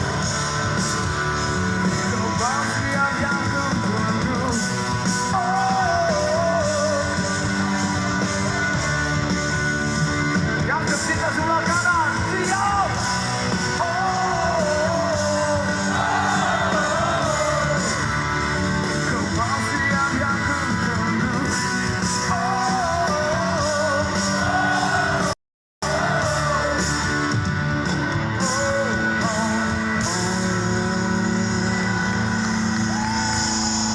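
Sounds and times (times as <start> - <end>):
rock band playing live: 0.0 - 33.9
person singing: 1.9 - 8.7, 10.6 - 18.2, 18.8 - 27.3, 28.4 - 32.6.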